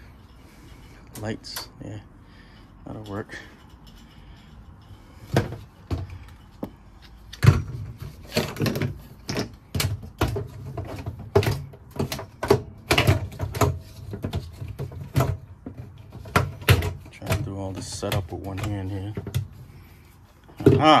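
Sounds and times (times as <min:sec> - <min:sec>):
items knocking on hard surfaces: 0:20.5 - 0:21.0.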